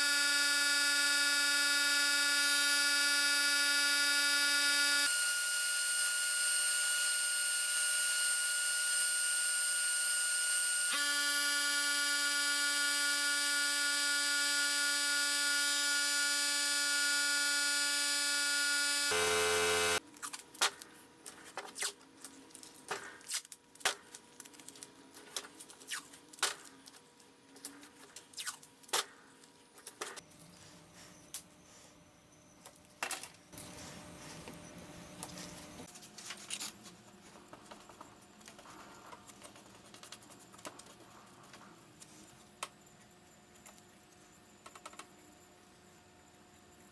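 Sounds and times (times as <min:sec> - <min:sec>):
electric power tool whining: 0:00.0 - 0:20.0.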